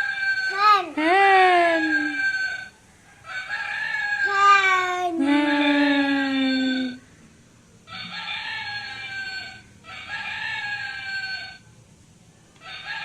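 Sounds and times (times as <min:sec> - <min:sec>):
rooster crowing: 0:00.0 - 0:00.8, 0:01.8 - 0:07.0, 0:07.9 - 0:11.7, 0:12.6 - 0:13.0.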